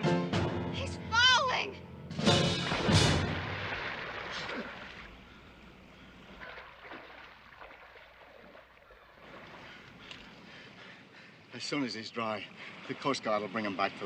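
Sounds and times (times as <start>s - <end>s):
water splash: 2.2s - 5.2s, 6.3s - 9.7s
water washing and sloshing: 2.2s - 5.3s, 6.0s - 10.7s.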